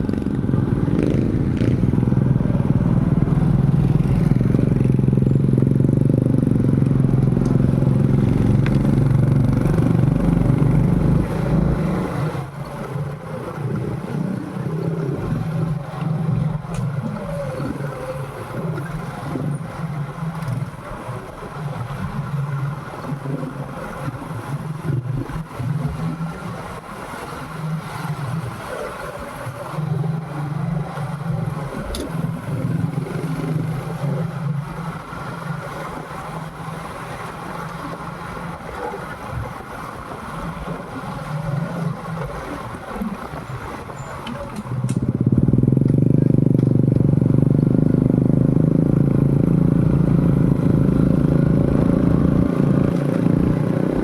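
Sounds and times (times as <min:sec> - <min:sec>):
motorcycle engine running: 0:00.0 - 0:12.6, 0:44.7 - 0:54.0
road and wind noise: 0:00.0 - 0:54.0.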